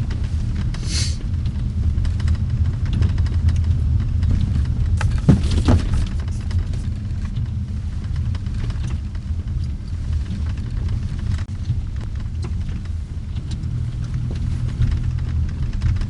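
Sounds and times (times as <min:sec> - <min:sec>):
car driving rumble: 0:00.0 - 0:16.0
light clicks and ticks: 0:06.1 - 0:16.0.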